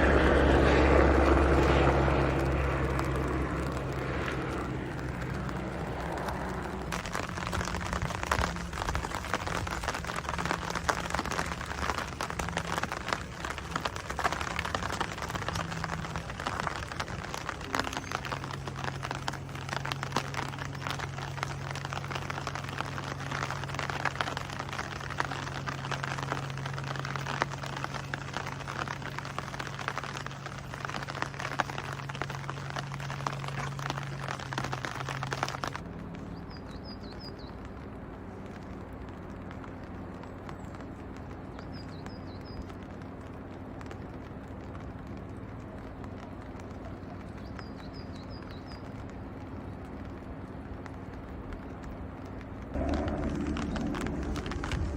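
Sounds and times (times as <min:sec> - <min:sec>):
low steady hum: 0:00.0 - 0:54.9
steady rain pattering: 0:00.0 - 0:54.9.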